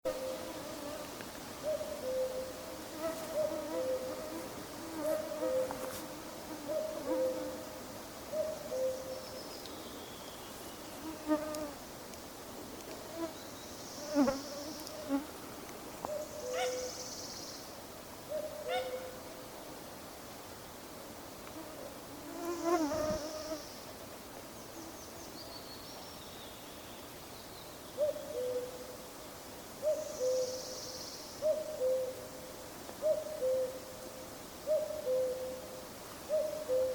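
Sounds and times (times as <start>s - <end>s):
cuckoo calling: 1.6s - 2.6s, 34.7s - 35.7s, 36.3s - 36.9s
insects whining and buzzing: 12.9s - 15.4s, 21.6s - 23.8s.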